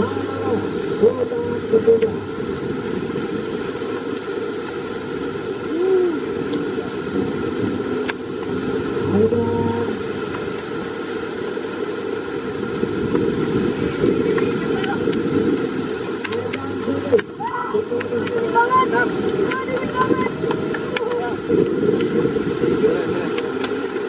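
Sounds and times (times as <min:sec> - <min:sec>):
heavy rain pouring: 0:00.0 - 0:24.0
voice-like calls: 0:05.6 - 0:06.5.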